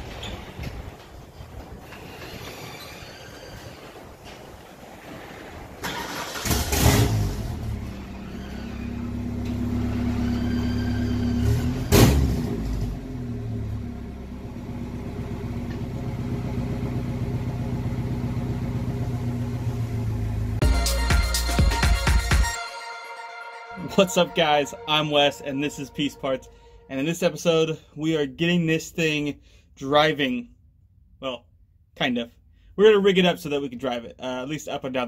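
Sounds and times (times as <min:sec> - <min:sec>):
car engine cranking and idling: 0:05.8 - 0:20.6
garage door opener running: 0:07.8 - 0:12.0.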